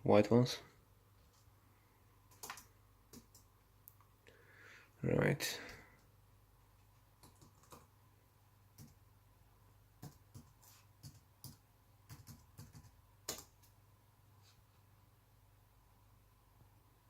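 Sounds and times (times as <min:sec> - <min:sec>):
laptop keys clicking: 0:02.3 - 0:03.5, 0:07.2 - 0:07.9, 0:08.8 - 0:09.0, 0:10.0 - 0:13.8.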